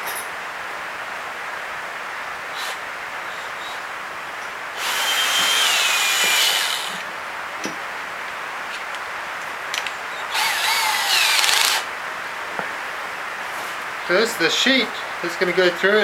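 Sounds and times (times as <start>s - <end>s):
power drill boring into wood: 4.8s - 7.0s, 10.3s - 11.9s.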